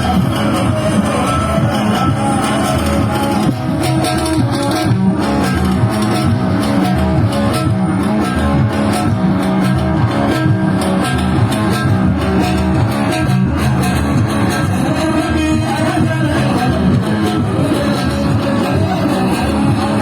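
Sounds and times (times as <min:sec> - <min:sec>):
bass guitar: 0:00.0 - 0:20.0
plucked guitar: 0:00.0 - 0:20.0.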